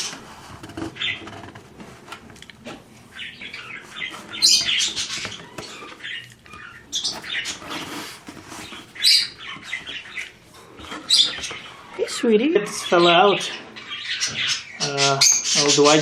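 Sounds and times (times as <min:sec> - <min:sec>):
scratching and rustling: 0:00.0 - 0:12.1
birds chirping and squawking: 0:00.0 - 0:16.0.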